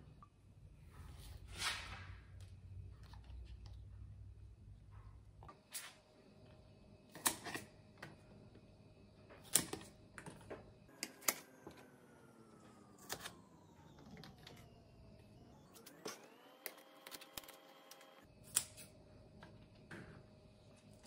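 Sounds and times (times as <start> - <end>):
scissors snipping: 17.3 - 18.9.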